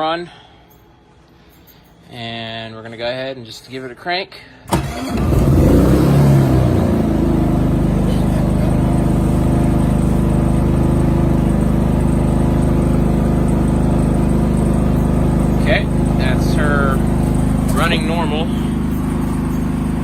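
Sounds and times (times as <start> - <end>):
generator engine running: 4.7 - 20.0.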